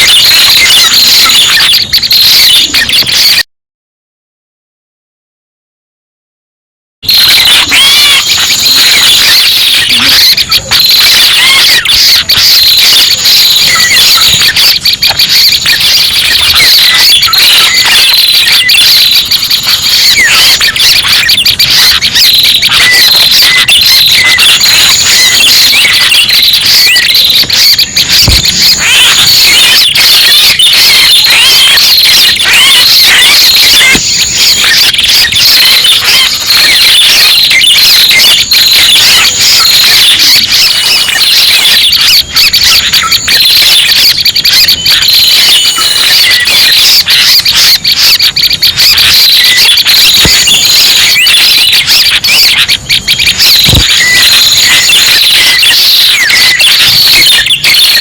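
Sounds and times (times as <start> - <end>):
bird chirps and trills: 7.5 - 41.4.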